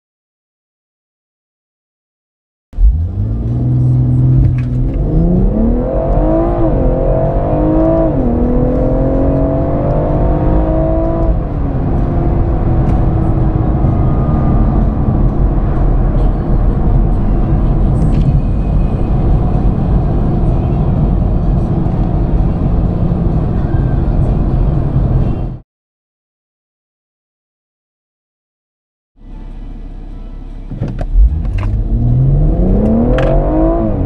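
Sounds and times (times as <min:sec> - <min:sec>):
car engine revving and accelerating: 0:02.8 - 0:25.6, 0:30.7 - 0:34.0
road and wind noise: 0:02.8 - 0:25.6, 0:29.2 - 0:34.0.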